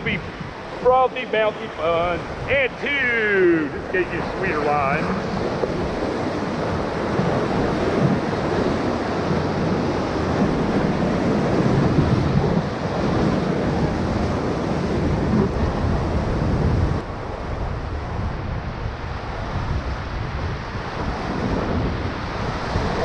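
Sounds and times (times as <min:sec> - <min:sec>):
whitewater rushing and splashing: 0:00.0 - 0:17.2
wind buffeting microphone: 0:00.0 - 0:23.0.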